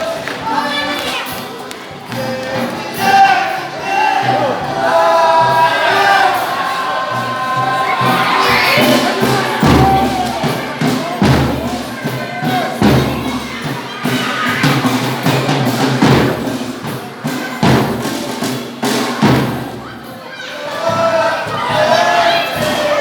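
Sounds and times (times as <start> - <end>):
singing voices: 0.0 - 23.0
folk instruments playing: 2.0 - 15.9
drum struck heavily: 4.2 - 20.1.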